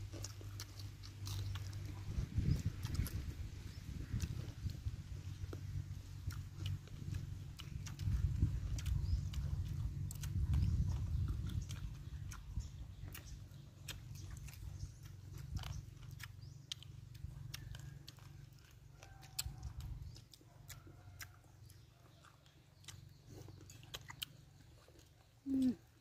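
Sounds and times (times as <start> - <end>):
chewing with wet lip smacks: 0.0 - 26.0
low rumble: 1.4 - 18.3
person humming: 25.4 - 25.8.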